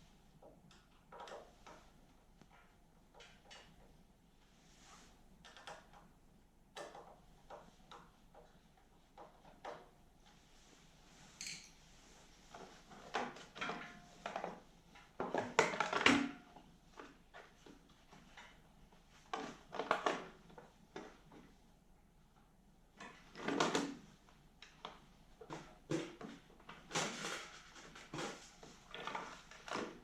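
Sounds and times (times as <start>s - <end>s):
tools and small parts clattering: 11.4s - 11.8s.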